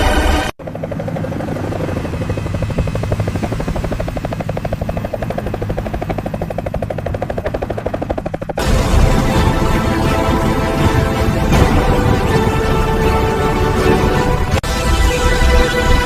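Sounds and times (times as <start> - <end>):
helicopter rotor chopping: 0.0 - 16.0
music: 8.6 - 16.0.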